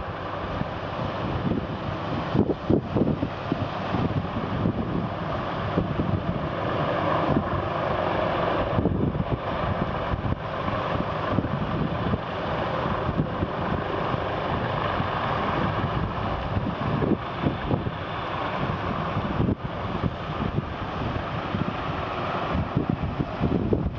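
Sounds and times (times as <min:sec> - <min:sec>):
steady mechanical drone: 0:00.0 - 0:23.9
wind buffeting microphone: 0:00.0 - 0:23.9.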